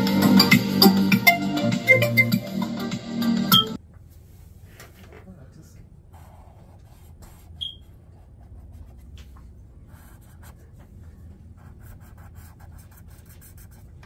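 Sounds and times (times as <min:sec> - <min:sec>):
drawing tool scratching paper: 0:06.1 - 0:09.0, 0:11.6 - 0:14.0
short high squeak: 0:07.6 - 0:07.9.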